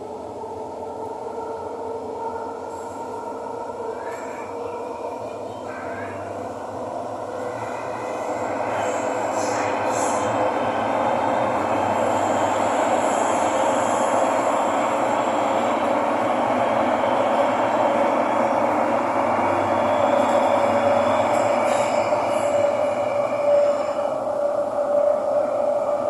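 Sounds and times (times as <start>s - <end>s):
metro train rumble and hum: 0.0s - 26.0s.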